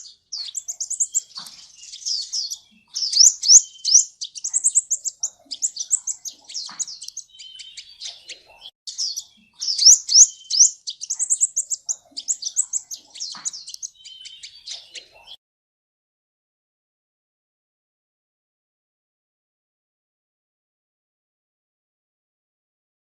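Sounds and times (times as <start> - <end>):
bird twittering song: 0.0 - 15.4.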